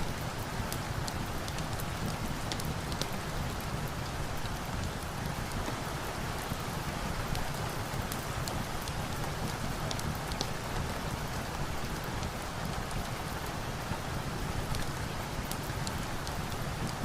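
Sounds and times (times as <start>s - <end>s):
rain on a surface: 0.0s - 17.0s
wood fire crackling: 0.1s - 13.6s.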